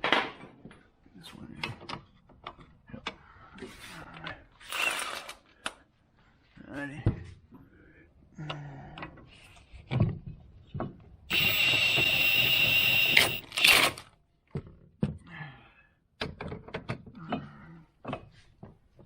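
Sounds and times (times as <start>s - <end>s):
power tool whining: 11.3s - 14.0s.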